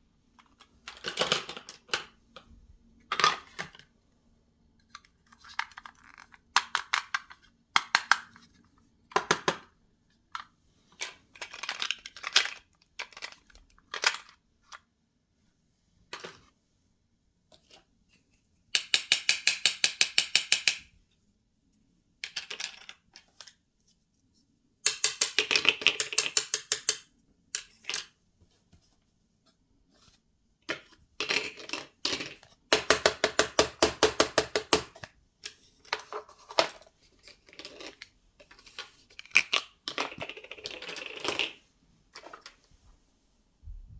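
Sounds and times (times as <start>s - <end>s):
plastic toy pieces clicking: 5.3s - 8.4s, 18.8s - 20.9s, 22.2s - 23.5s, 24.8s - 28.1s.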